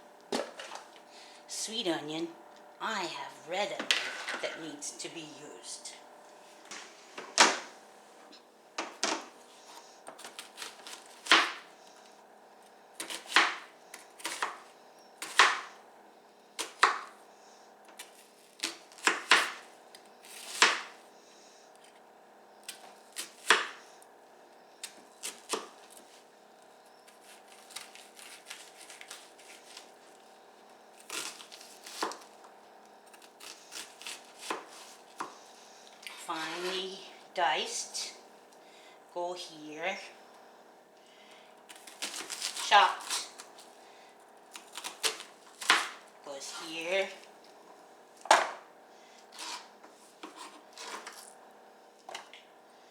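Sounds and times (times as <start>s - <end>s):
faint steady hum: 0.0s - 52.9s
knife chopping on cutting board: 15.2s - 15.7s, 16.6s - 17.1s, 18.6s - 19.6s, 33.4s - 35.3s, 44.7s - 46.0s, 50.2s - 51.2s.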